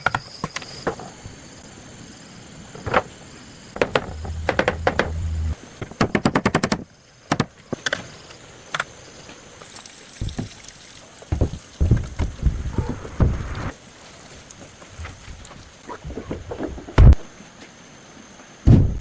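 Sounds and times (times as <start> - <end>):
building work knocks and strikes: 3.8 - 5.6, 11.3 - 13.7.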